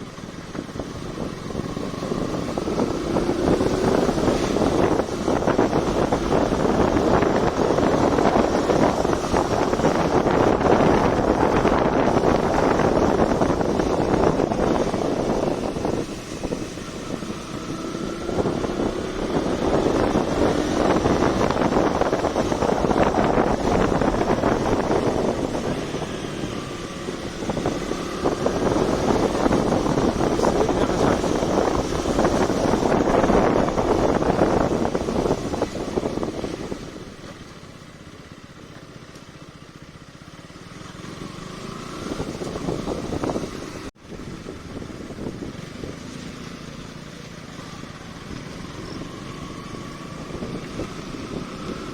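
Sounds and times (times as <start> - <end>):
wind noise on microphone: 0.0 - 38.0, 40.9 - 51.9
motorcycle engine running: 0.0 - 51.9.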